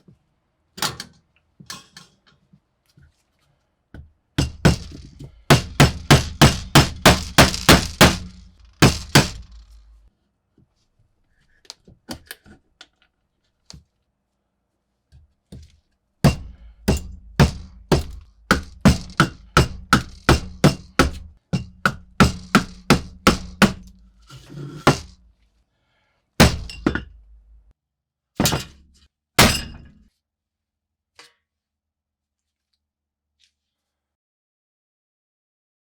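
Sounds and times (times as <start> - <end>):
hard sharp thunks: 4.4 - 9.8, 16.3 - 21.3.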